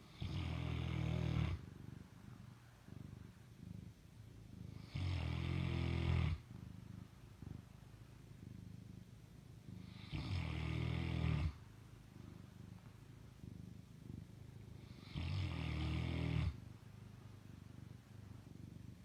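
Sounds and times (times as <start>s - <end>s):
dog rasping snores: 0.1s - 1.6s, 4.7s - 6.4s, 9.8s - 11.6s, 14.8s - 16.6s.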